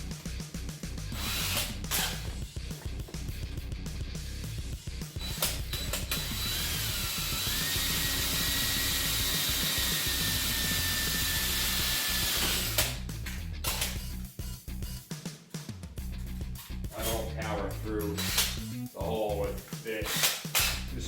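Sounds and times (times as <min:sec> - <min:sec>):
background music: 0:00.0 - 0:21.0
drill click: 0:01.1 - 0:02.4, 0:05.2 - 0:14.1, 0:18.2 - 0:18.6, 0:20.0 - 0:21.0
electric drill boring metal: 0:01.1 - 0:02.4, 0:05.2 - 0:13.0, 0:18.2 - 0:18.6, 0:20.0 - 0:20.9.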